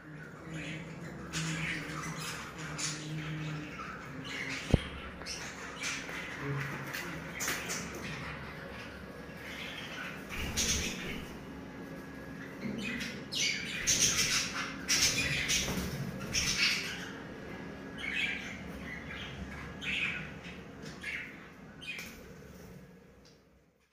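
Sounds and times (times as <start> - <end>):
budgerigars harsh calls: 9.4 - 11.4, 12.8 - 17.2.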